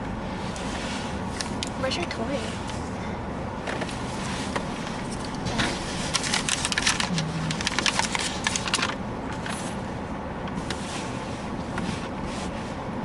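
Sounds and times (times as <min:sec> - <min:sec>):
paper packaging crinkling: 0:06.0 - 0:09.0.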